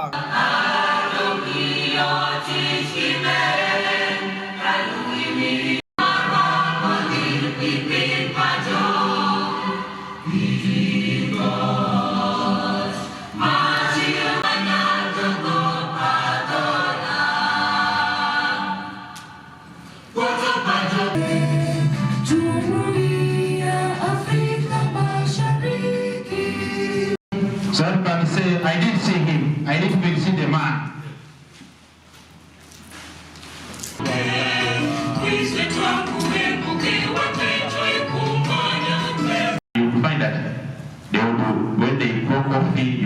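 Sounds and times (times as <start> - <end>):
choir singing: 0.0 - 19.5, 20.1 - 27.5, 34.0 - 39.6.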